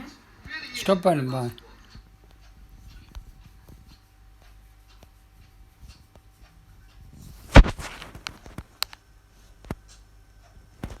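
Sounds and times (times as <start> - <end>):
light sharp clicks and taps: 1.9 - 7.0, 7.6 - 9.0
loud thump: 7.5 - 8.0.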